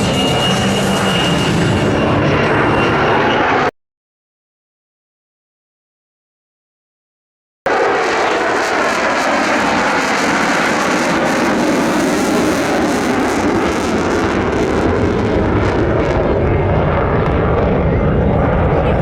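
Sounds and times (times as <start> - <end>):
fighter jet engine roar: 0.0 - 3.7, 7.7 - 19.0.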